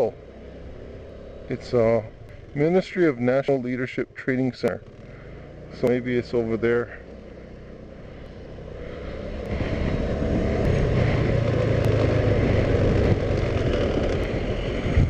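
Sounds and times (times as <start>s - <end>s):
moped engine running: 0.0s - 15.0s
wind noise on microphone: 9.5s - 15.0s.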